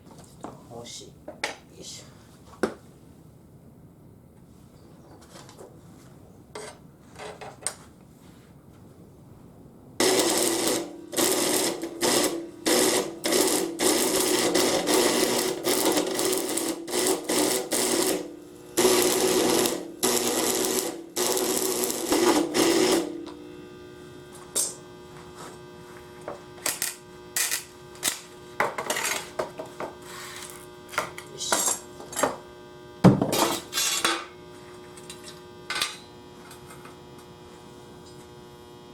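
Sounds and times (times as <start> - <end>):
steady hum: 9.0 - 38.9
small power tool motor bursts: 10.0 - 23.9.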